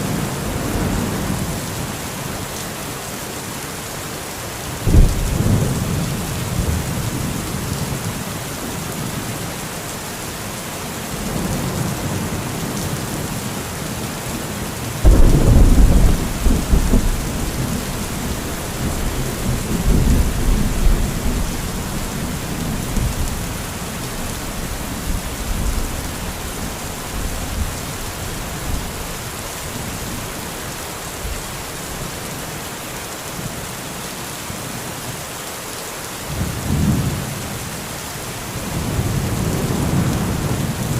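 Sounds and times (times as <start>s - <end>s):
heavy rain falling: 0.0s - 40.9s
thunder clap and rumbles: 4.8s - 7.8s, 15.0s - 27.8s, 38.7s - 40.9s.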